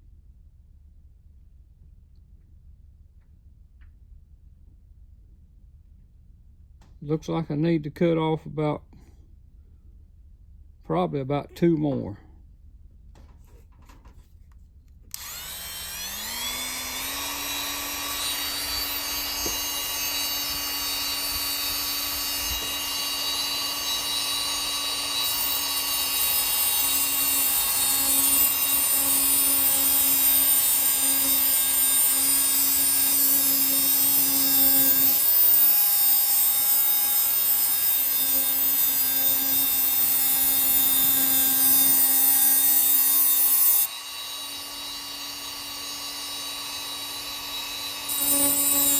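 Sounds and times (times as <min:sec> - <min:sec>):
small power tool whining: 0:15.1 - 0:48.9.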